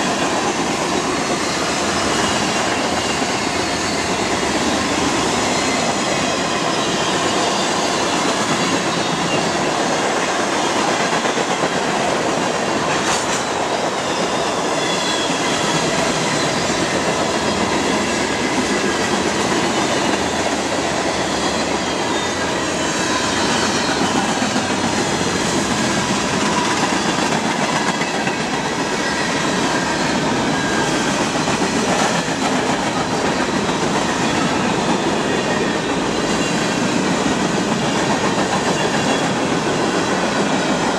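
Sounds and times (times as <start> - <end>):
rail joint clickety-clack: 0.0 - 40.9
train wheels rumbling on rail: 0.0 - 40.9.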